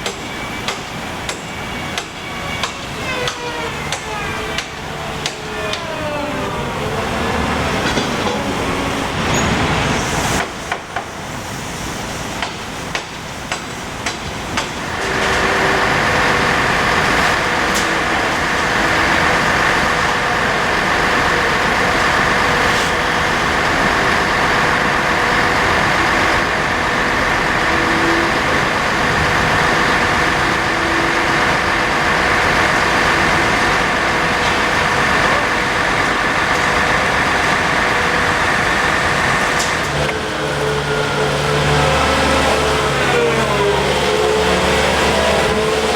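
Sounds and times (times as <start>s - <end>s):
sharp metallic knocks: 0.0s - 5.9s
mechanical whine: 0.0s - 10.8s
diesel engine running: 0.0s - 45.9s.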